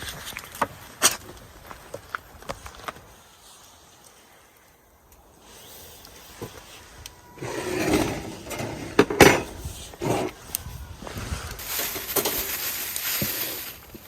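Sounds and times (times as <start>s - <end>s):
objects rubbing and rustling: 5.4s - 14.0s.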